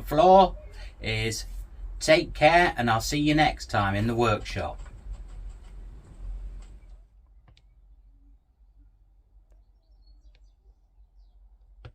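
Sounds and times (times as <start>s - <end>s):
low room rumble and hiss: 0.0s - 9.4s.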